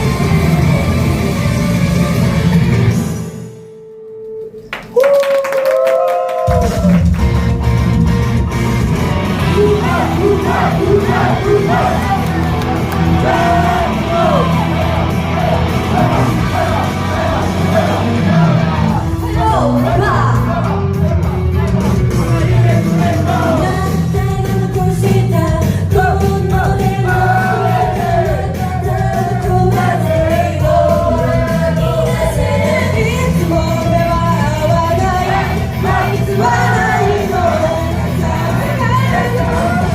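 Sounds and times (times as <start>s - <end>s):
audience shouting and cheering: 4.9s - 24.9s, 26.0s - 39.9s
pop song over speakers: 9.2s - 39.9s.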